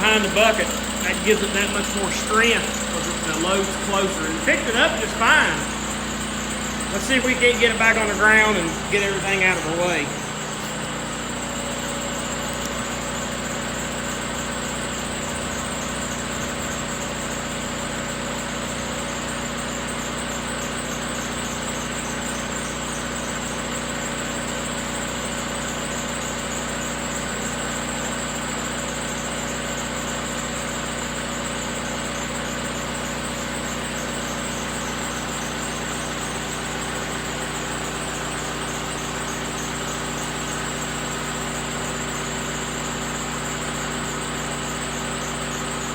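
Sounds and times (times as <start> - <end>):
high-pitched whine: 0.0 - 13.0
diesel engine running: 0.0 - 45.9.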